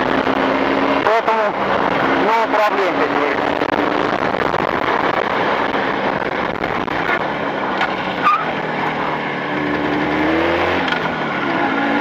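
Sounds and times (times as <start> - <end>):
wind rush: 0.0 - 8.7
motorcycle engine running: 0.0 - 12.0.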